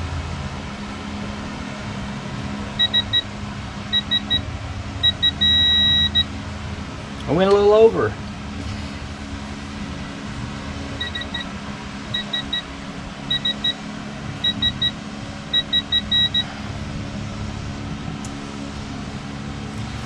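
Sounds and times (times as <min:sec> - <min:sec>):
steady low hum: 0:00.0 - 0:20.0
torque wrench beeping: 0:02.8 - 0:03.2, 0:03.9 - 0:04.4, 0:05.0 - 0:06.3, 0:11.0 - 0:11.5, 0:12.1 - 0:13.8, 0:14.4 - 0:16.5.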